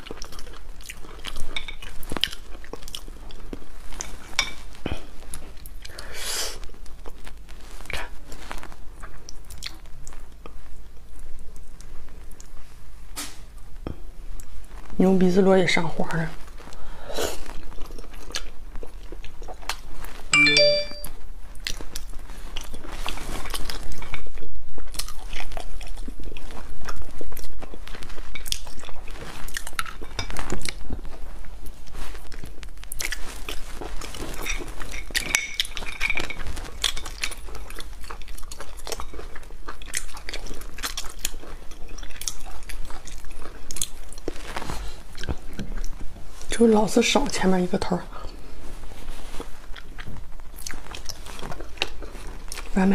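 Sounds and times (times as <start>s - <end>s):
biting and chewing crunches: 0.0s - 5.9s, 21.6s - 46.2s, 49.4s - 52.8s.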